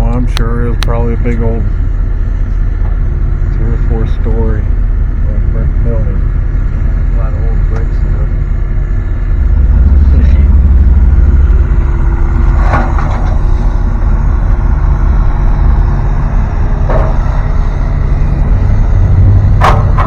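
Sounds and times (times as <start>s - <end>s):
truck engine and road rumble: 0.0s - 20.0s.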